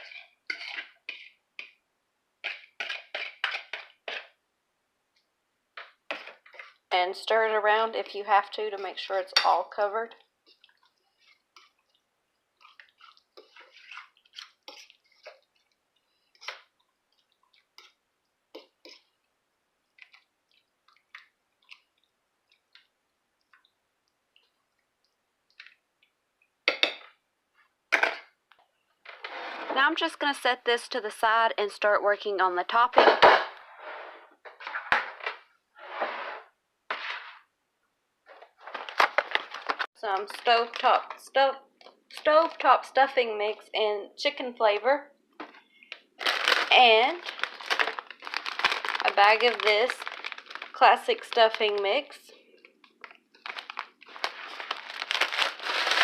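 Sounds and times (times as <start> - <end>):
wet squishing of thick sauce: 0.0 - 1.8, 2.4 - 4.4, 5.1 - 6.9, 8.0 - 27.8.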